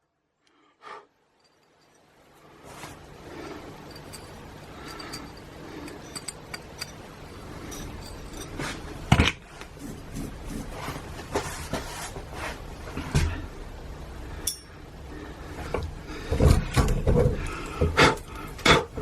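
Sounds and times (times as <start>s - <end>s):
metal tools clicking and clinking: 3.8s - 9.0s, 14.4s - 14.7s.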